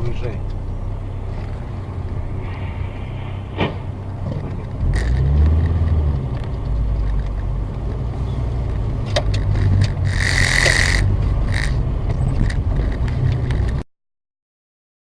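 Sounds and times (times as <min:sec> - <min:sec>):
car engine and road drone: 0:00.0 - 0:13.9
short high hiss: 0:02.4 - 0:04.0
sharp clicks: 0:03.5 - 0:13.8.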